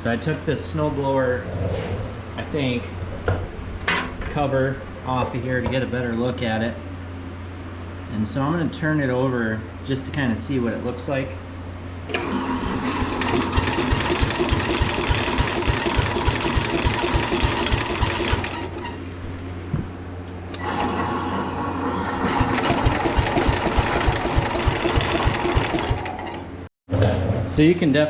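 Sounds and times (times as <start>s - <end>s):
machine rattling: 12.1s - 19.3s, 20.5s - 26.7s
garden tractor engine running: 12.1s - 19.4s, 20.5s - 26.7s.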